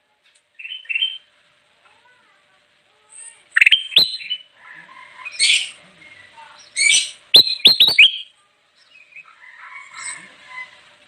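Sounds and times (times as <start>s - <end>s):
bulbul chirping: 3.5s - 4.5s, 6.8s - 8.3s.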